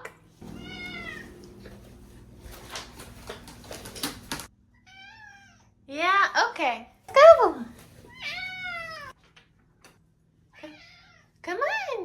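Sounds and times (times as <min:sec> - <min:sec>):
cat meowing: 0:00.4 - 0:01.4, 0:08.1 - 0:09.1.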